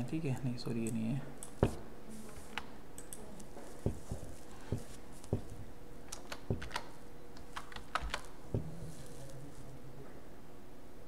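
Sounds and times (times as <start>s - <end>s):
faint steady hum: 0.0s - 11.0s
computer keyboard keys clicking: 6.1s - 8.3s.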